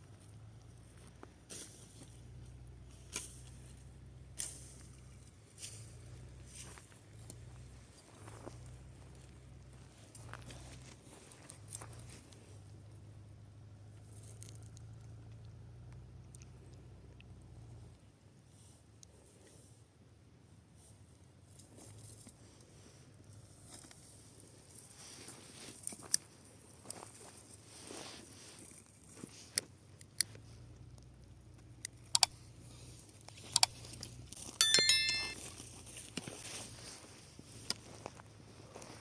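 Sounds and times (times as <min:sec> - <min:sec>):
bright metallic ring: 0:34.6 - 0:35.5.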